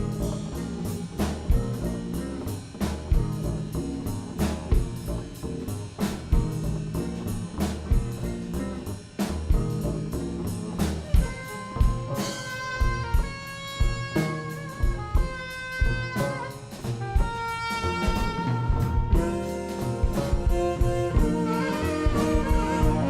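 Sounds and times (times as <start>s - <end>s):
bass groove: 0.0s - 23.0s
drum kit: 0.0s - 23.0s
horn playing long notes: 11.1s - 23.0s.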